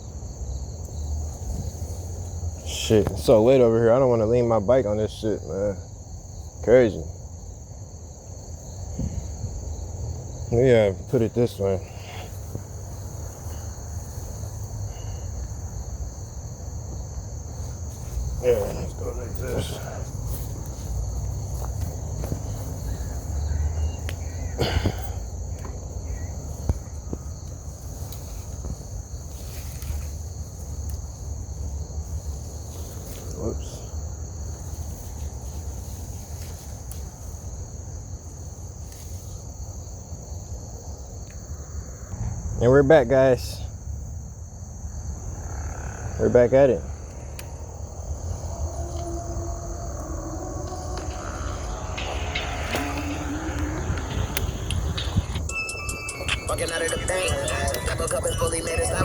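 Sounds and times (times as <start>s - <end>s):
crickets chirring: 0.0s - 59.0s
high-pitched insect chorus: 0.0s - 59.0s
low rumble: 47.3s - 55.6s.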